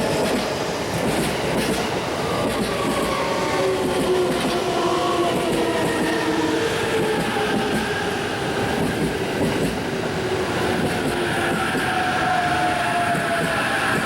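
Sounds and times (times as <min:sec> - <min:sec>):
train wheels rolling: 0:00.0 - 0:14.0.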